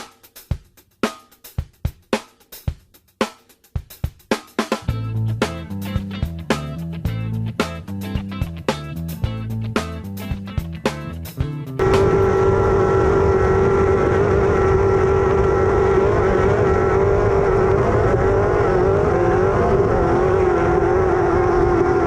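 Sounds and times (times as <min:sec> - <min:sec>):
loud rushing noise: 0:11.8 - 0:21.8
race car engine at high revs: 0:11.8 - 0:22.0.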